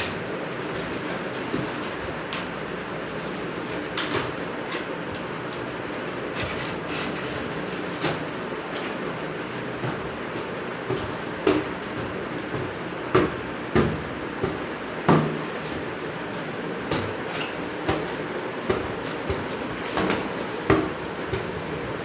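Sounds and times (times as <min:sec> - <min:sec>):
knocks of things being handled: 0:06.4 - 0:21.9.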